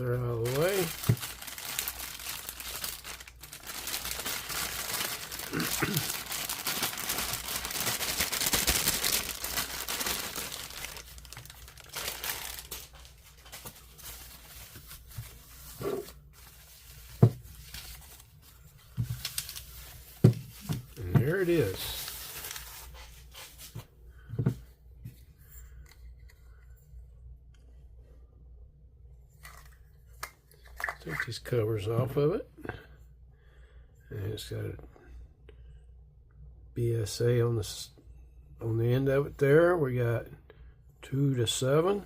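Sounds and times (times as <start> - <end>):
packaging crinkling and tearing: 0.0 - 18.3, 19.0 - 23.0.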